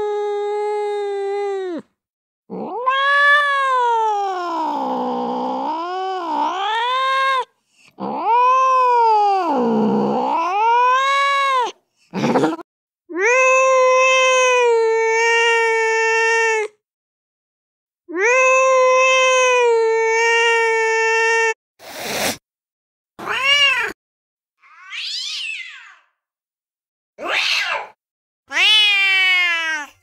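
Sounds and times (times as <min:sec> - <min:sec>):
angry cat yowling: 0:02.5 - 0:16.7, 0:23.2 - 0:24.0, 0:24.6 - 0:26.1, 0:27.2 - 0:30.0.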